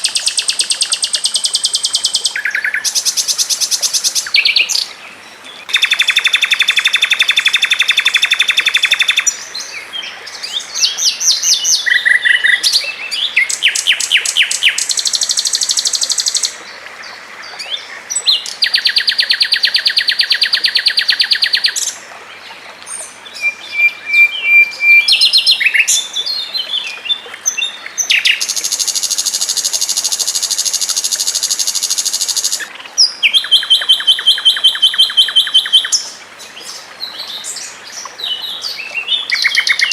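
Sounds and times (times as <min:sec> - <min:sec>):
songbird rapid trills: 0:05.7 - 0:09.3, 0:28.0 - 0:36.1.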